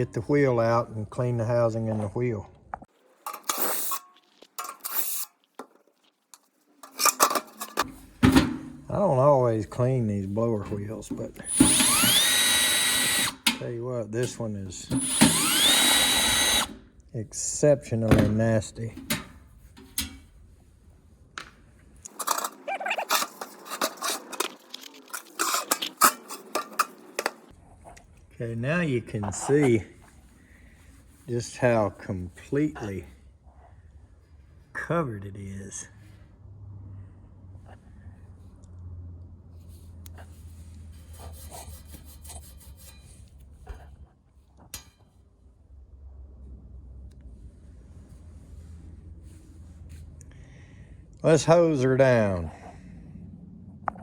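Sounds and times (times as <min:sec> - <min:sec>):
sheet metal parts clinking: 0:06.8 - 0:09.0, 0:19.0 - 0:20.3, 0:22.1 - 0:27.5
blower wheel scraping: 0:09.7 - 0:16.8, 0:22.1 - 0:27.5.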